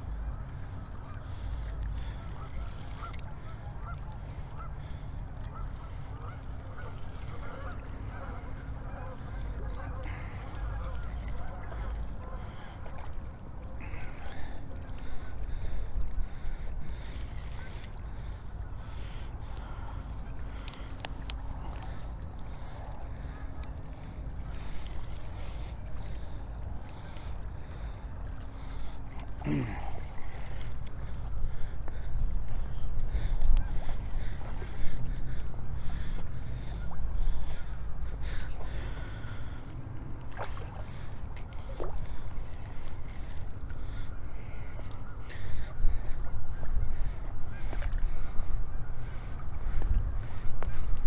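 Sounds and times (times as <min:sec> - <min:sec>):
river water running: 0:00.0 - 0:51.0
steady low rumble: 0:00.0 - 0:51.0
geese honking: 0:02.0 - 0:12.6.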